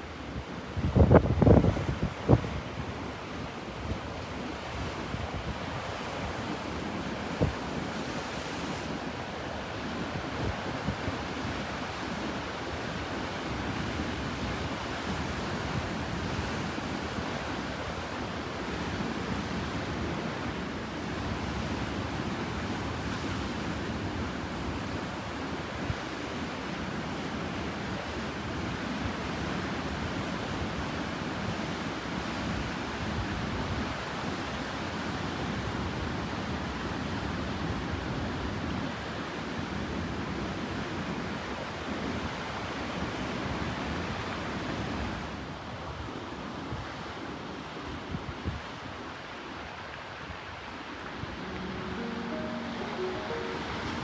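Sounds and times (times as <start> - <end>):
sea surf breaking: 50.8 - 54.0.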